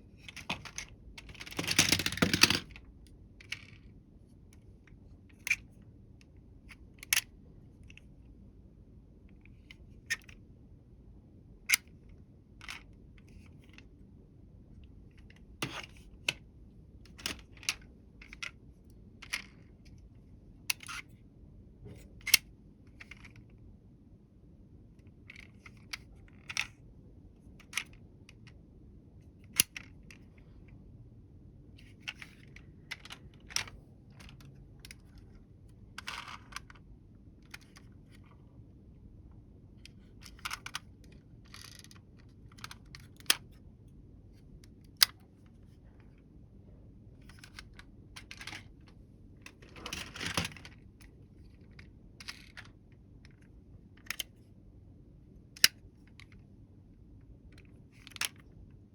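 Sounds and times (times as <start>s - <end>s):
toy vehicles clicking and tapping: 0.4s - 2.7s.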